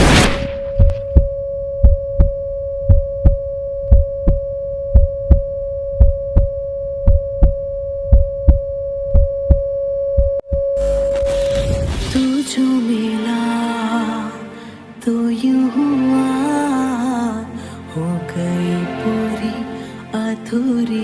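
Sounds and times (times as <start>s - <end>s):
steady high sine tone: 0.0s - 12.7s
heartbeat thumps: 0.7s - 10.8s.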